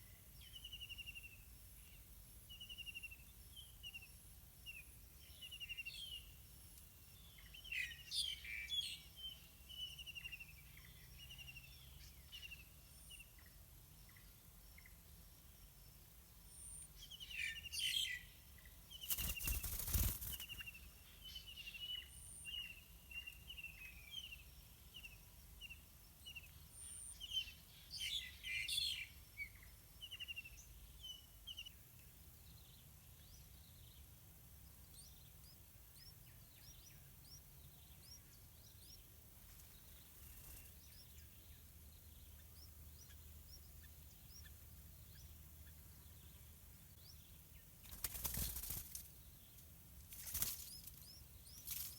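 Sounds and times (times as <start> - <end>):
bulbuls chirping: 34.6 - 46.4.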